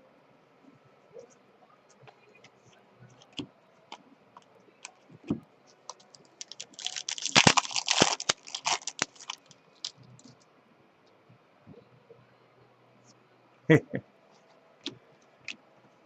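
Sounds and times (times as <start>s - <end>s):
foil wrappers crinkling: 5.9s - 10.0s.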